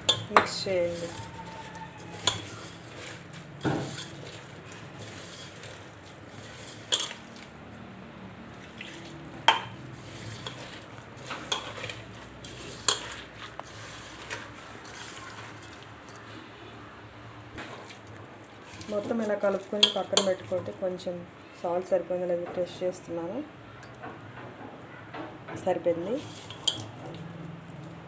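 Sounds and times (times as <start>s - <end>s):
batter stirring in bowl: 0.0s - 7.6s, 8.5s - 16.1s, 17.6s - 20.8s, 26.2s - 27.8s
spoon clinking against bowl: 2.2s - 2.6s, 19.8s - 20.4s.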